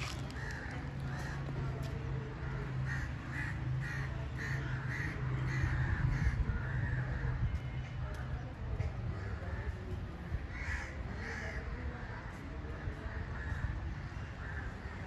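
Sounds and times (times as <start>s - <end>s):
crows cawing: 0.0s - 1.6s, 2.5s - 7.2s, 10.5s - 11.6s, 13.3s - 15.0s.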